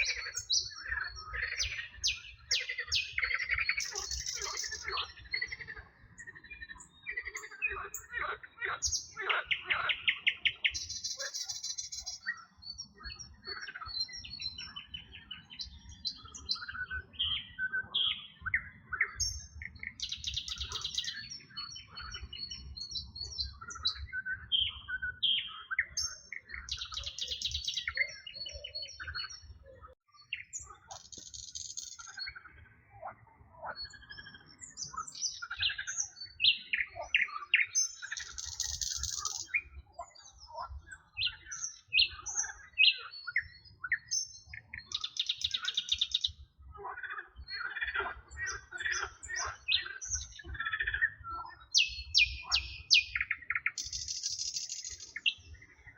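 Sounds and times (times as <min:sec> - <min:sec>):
songbirds singing: 0:00.0 - 0:55.9.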